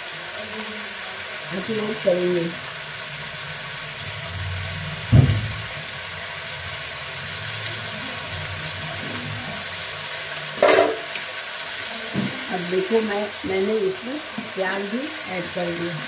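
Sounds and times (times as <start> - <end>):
vegetables sizzling in oil: 0.0 - 16.0
dull thump: 5.1 - 5.7.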